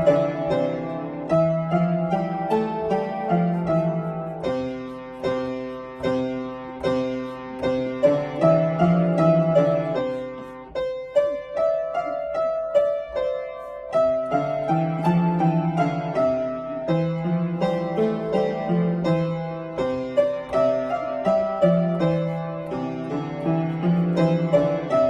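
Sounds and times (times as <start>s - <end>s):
solo piano: 0.0s - 25.0s.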